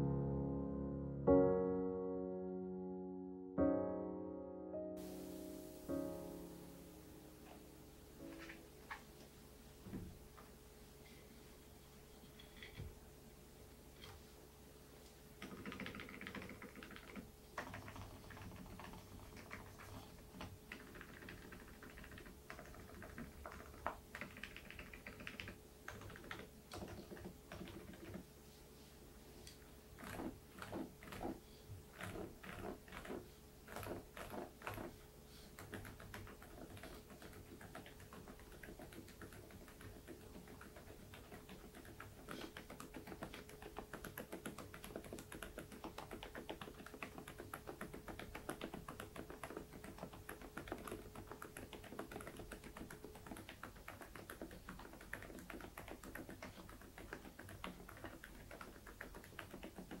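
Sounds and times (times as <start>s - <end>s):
muted keyboard typing: 15.4s - 28.3s, 30.0s - 35.0s, 35.6s - 60.0s.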